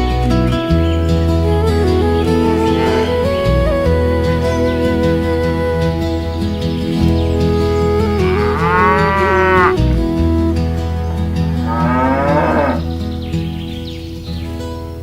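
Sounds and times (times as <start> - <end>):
background music: 0.0 - 15.0
cattle mooing: 2.0 - 3.6, 8.1 - 13.0.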